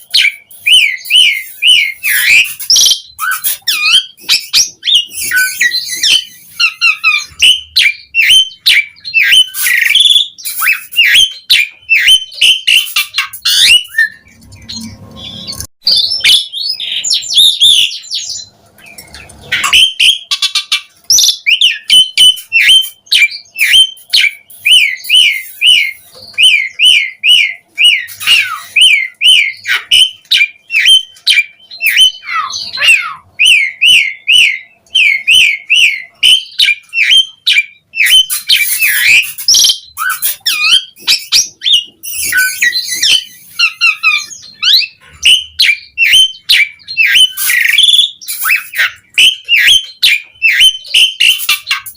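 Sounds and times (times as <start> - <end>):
starling whistled song: 0.0 - 51.9
starling harsh chattering squawks: 23.6 - 51.9.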